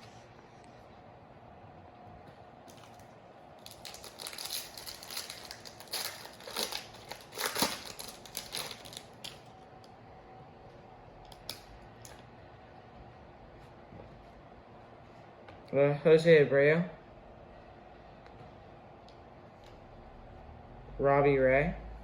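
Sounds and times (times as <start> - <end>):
foil wrapper crinkling and tearing: 2.7 - 9.5.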